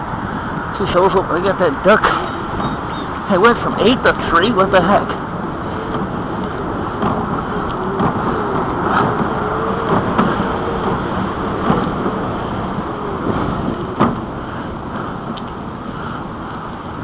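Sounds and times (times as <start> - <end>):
wind and bicycle tyres rumbling: 0.0 - 17.0
faint wavering squeak: 2.1 - 3.2
bicycle knocks and rattles: 5.2 - 16.1.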